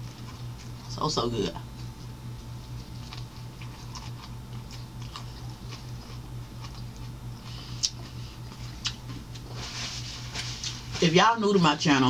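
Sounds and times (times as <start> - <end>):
person chewing a sandwich: 0.0 - 1.0, 1.6 - 10.9
steady low hum: 0.0 - 12.0
wet mouth clicks and smacks: 7.8 - 8.0, 8.8 - 9.4.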